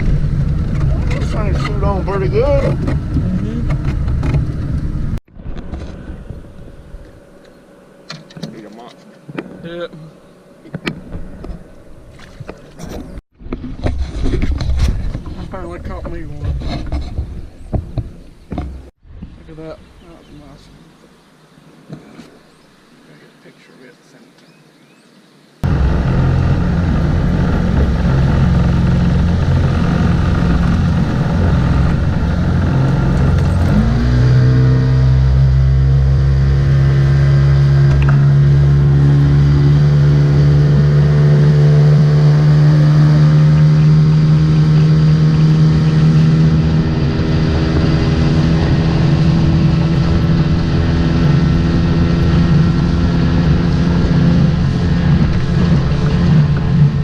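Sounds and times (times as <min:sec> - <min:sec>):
motorboat engine running: 0:00.0 - 0:16.5, 0:25.6 - 0:57.0.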